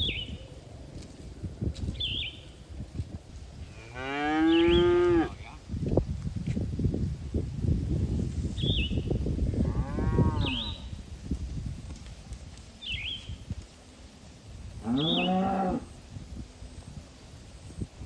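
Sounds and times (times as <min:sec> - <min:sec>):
cattle mooing: 0:03.9 - 0:05.4, 0:14.8 - 0:15.9.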